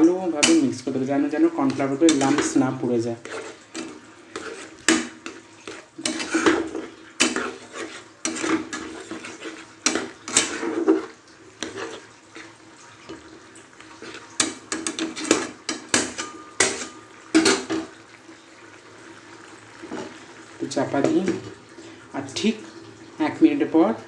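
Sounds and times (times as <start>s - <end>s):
metal spoon scraping a pot: 0.3s - 17.9s
soup swishing: 0.4s - 17.0s.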